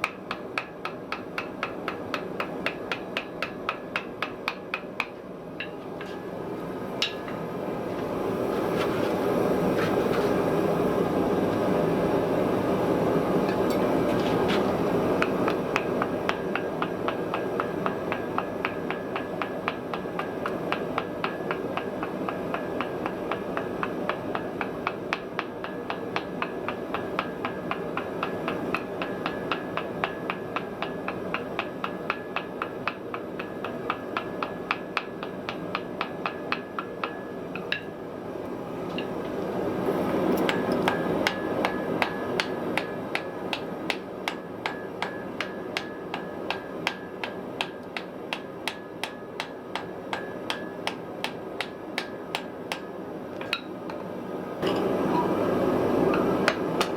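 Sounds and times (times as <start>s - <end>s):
hammer striking iron on anvil: 0.0s - 6.3s, 7.0s - 7.4s, 15.2s - 38.0s, 38.9s - 39.3s, 40.5s - 54.9s, 56.1s - 56.9s.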